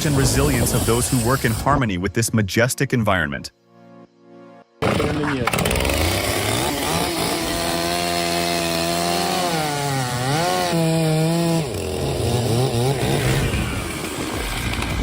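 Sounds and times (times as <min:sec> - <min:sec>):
chainsaw running at high speed: 0:00.0 - 0:01.6, 0:04.8 - 0:15.0.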